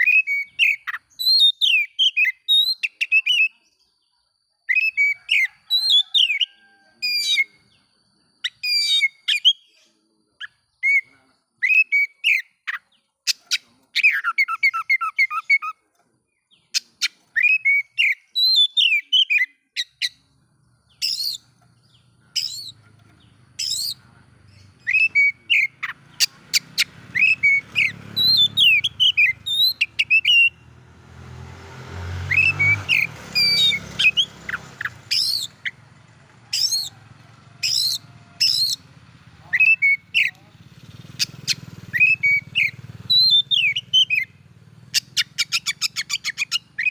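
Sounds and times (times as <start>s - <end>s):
bird singing whistled phrases: 0.0s - 3.6s, 4.7s - 7.6s, 10.4s - 15.8s, 16.6s - 20.2s, 21.0s - 21.4s, 23.6s - 24.0s, 24.6s - 30.7s, 32.2s - 35.8s, 37.6s - 38.8s, 41.2s - 44.3s, 45.0s - 46.9s.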